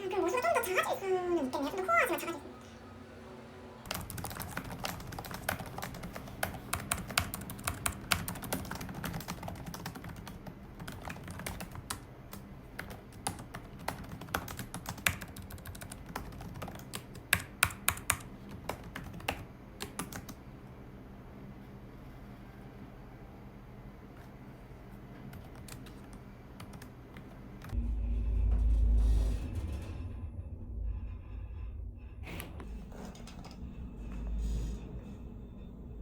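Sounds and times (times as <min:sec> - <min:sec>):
computer keyboard typing: 0:03.9 - 0:20.4, 0:25.3 - 0:27.8
steady low hum: 0:18.2 - 0:36.0.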